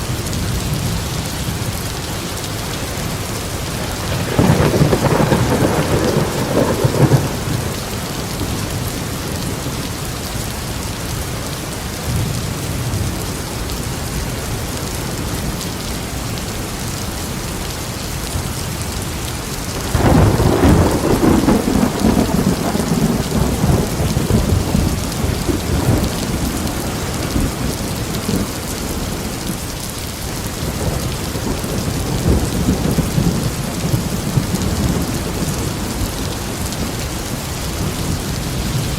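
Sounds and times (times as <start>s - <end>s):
thunder rumbling: 0.0s - 10.0s, 19.7s - 38.9s
steady rain: 0.0s - 38.9s
loud thunderclap: 3.7s - 8.3s, 19.8s - 29.3s, 30.6s - 36.1s.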